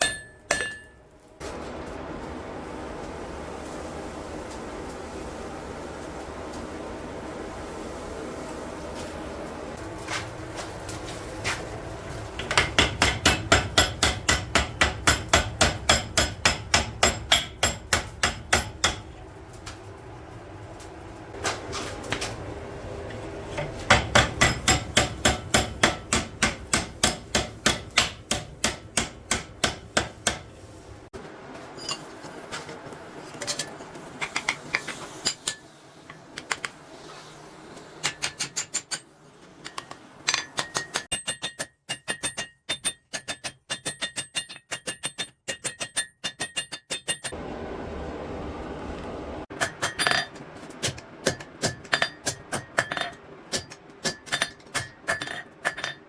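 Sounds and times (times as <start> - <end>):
hammer striking steel on anvil: 0.0 - 1.0, 12.4 - 19.2, 23.6 - 30.6, 38.0 - 39.0, 39.6 - 47.4, 49.5 - 56.0
low steady rumble: 47.4 - 55.9.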